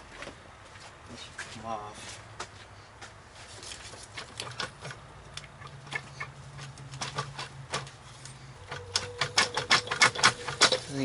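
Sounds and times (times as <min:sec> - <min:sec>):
steady low hum: 0:04.7 - 0:11.0
metal manifold clicking and knocking: 0:08.6 - 0:10.9.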